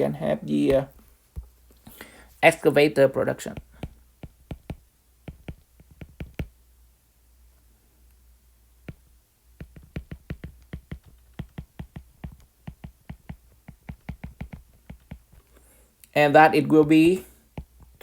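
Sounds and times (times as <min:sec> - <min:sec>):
faint low hum: 0:00.0 - 0:18.0
calculator keys clicking: 0:03.5 - 0:06.5, 0:09.6 - 0:15.4.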